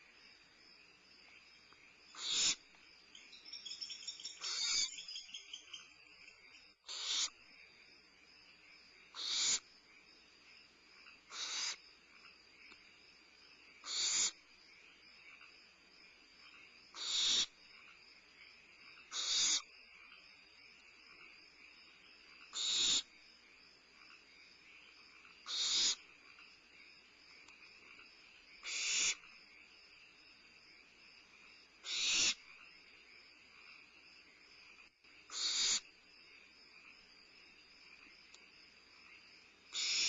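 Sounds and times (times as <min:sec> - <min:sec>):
owlets hissing begging calls: 0:02.2 - 0:02.6, 0:04.3 - 0:05.0, 0:06.9 - 0:07.3, 0:09.2 - 0:09.6, 0:11.3 - 0:11.8, 0:13.9 - 0:14.4, 0:17.0 - 0:17.5, 0:19.1 - 0:19.6, 0:22.6 - 0:23.0, 0:25.5 - 0:26.0, 0:28.6 - 0:29.2, 0:31.8 - 0:32.4, 0:35.3 - 0:35.8, 0:39.8 - 0:40.0.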